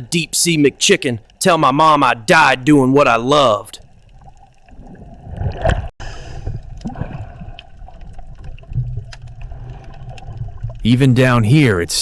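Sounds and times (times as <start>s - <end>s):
underwater gurgling and bubbles: 0.5s - 12.0s
small clicks: 7.6s - 10.7s.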